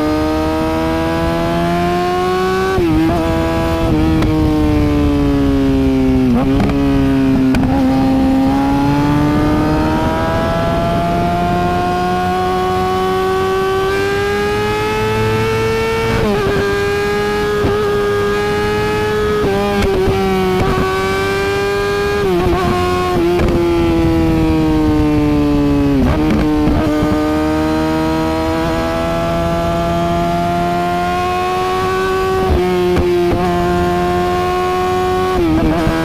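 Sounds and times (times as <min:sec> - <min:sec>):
motorcycle engine revving high: 0:00.0 - 0:36.0.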